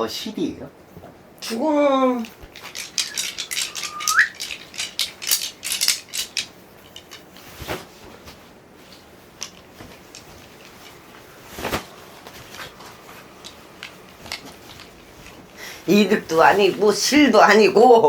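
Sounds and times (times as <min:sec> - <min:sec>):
small hard objects clicking: 0:02.2 - 0:07.2.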